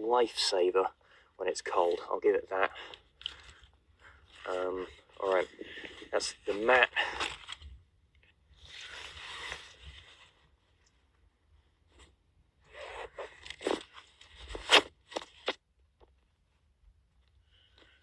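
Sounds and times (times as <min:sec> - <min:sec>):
nylon gear rustling: 0:08.6 - 0:10.6, 0:12.7 - 0:15.6.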